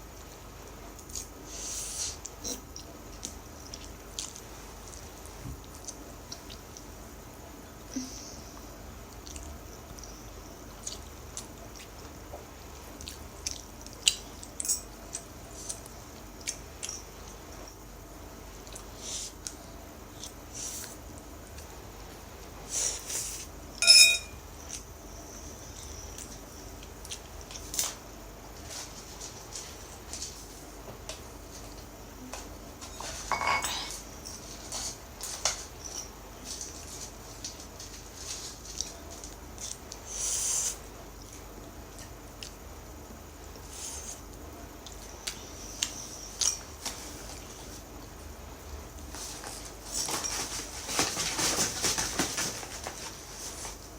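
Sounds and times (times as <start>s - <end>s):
wet chewing and smacking: 9.1s - 17.4s
utensils clinking against a bowl: 14.4s - 15.8s, 23.8s - 24.4s, 32.8s - 36.8s.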